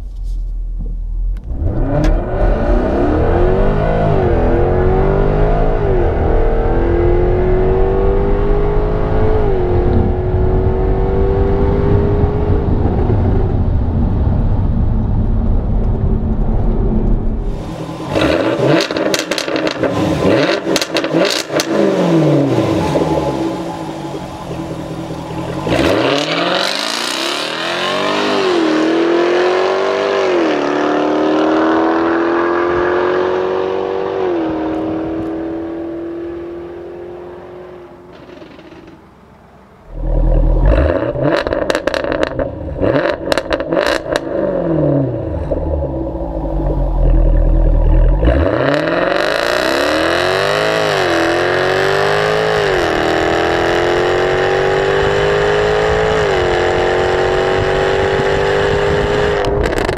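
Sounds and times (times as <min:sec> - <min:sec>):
car engine accelerating through gears: 0:01.4 - 0:14.6, 0:15.6 - 0:39.0, 0:39.8 - 0:59.9
exhaust cracks: 0:12.7 - 0:27.6, 0:37.6 - 0:50.0, 0:58.9 - 0:59.9.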